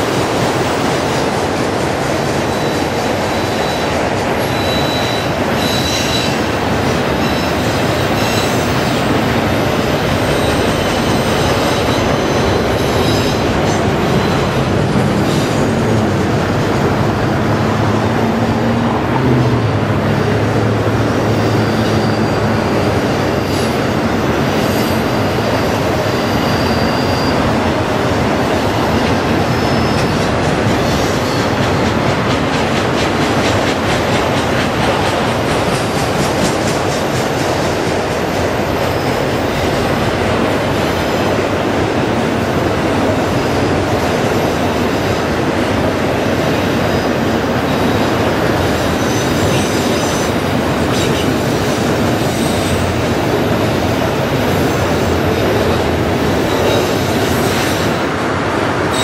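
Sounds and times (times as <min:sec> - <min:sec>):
train wheels rumbling on rails: 0:00.0 - 0:59.0
high wheel squeals: 0:02.4 - 0:15.8, 0:21.1 - 0:31.7, 0:47.0 - 0:58.0.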